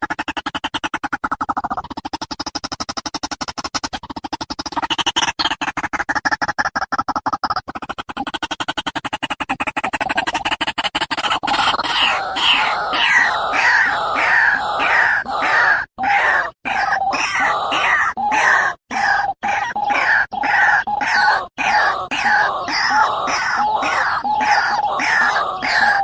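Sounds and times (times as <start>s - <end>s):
bird calling: 11.2s - 26.0s.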